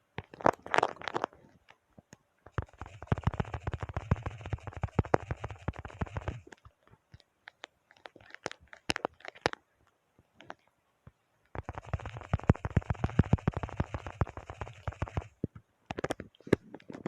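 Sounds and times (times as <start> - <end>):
keyboard keys clicking: 2.5 - 9.6, 11.6 - 17.0.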